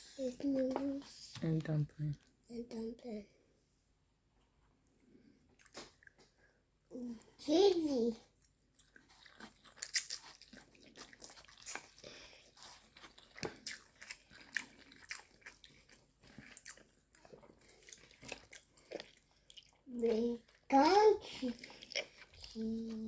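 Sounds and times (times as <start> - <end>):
chewing with wet mouth smacks: 5.5 - 6.3, 8.4 - 20.7, 21.4 - 23.0.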